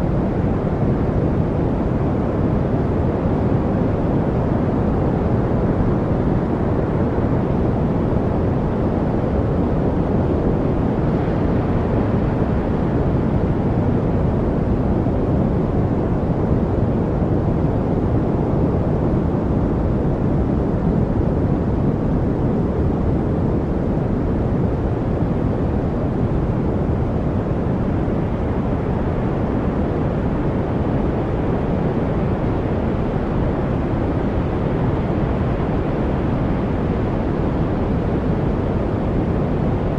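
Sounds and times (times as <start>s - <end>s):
deep muffled steady noise: 0.0s - 39.9s.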